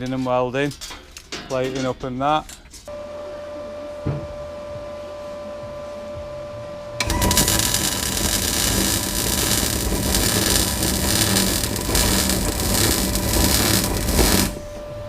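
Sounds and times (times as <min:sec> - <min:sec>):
welding arc crackling and sizzling: 0:07.0 - 0:14.8
arc welder humming: 0:07.0 - 0:15.0.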